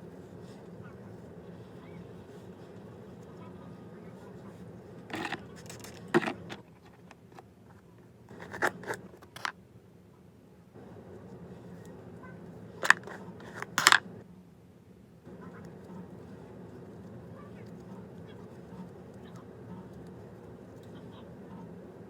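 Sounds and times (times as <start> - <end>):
steady low hum: 0.0 - 22.0
scrapes and clicks: 5.0 - 9.5, 12.8 - 14.1.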